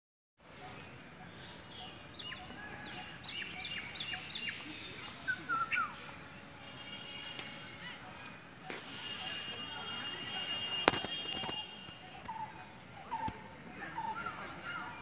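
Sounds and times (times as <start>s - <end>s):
small birds chirping: 0.5s - 15.0s.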